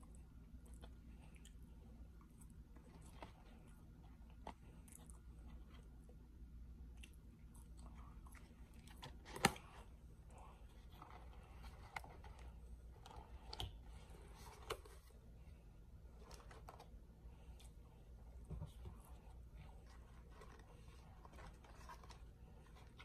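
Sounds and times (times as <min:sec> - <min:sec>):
chewing fries with mouth noises: 0:06.8 - 0:09.7.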